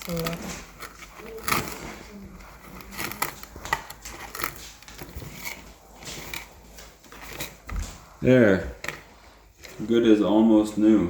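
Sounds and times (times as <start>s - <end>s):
tool clicking and snipping: 0.0s - 2.0s, 2.6s - 6.6s.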